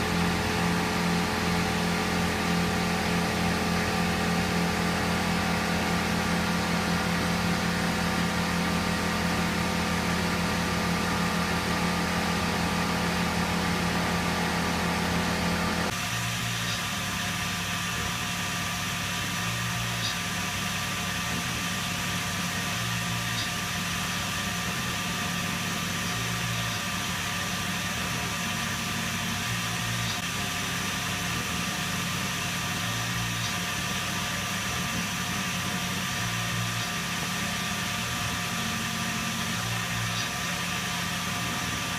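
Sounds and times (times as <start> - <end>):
milling machine spindle whine: 0.0 - 41.9.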